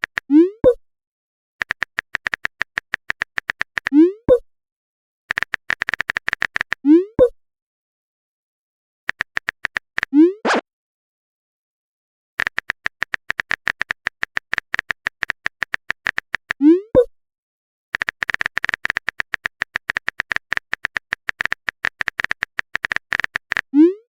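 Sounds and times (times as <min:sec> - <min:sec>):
phone keyboard typing clicks: 0:01.6 - 0:03.9, 0:05.3 - 0:06.8, 0:09.1 - 0:10.6, 0:12.4 - 0:16.6, 0:18.0 - 0:23.7
message sent pop: 0:10.4 - 0:10.6.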